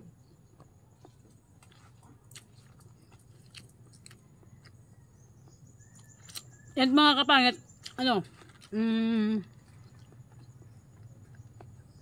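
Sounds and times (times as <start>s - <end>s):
soft wet chewing clicks: 0.4s - 6.6s.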